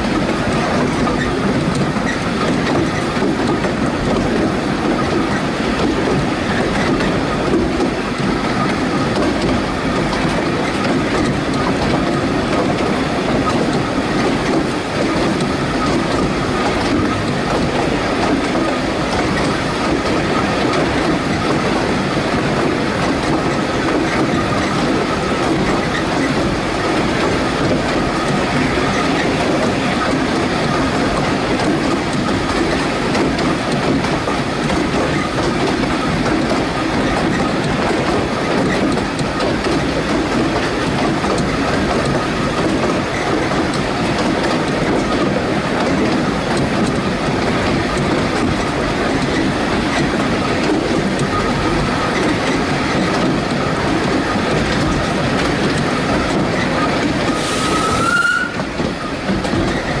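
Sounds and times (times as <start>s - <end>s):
wheels rumbling on rail: 0.0s - 60.0s
faint wheel squeal: 57.3s - 58.6s.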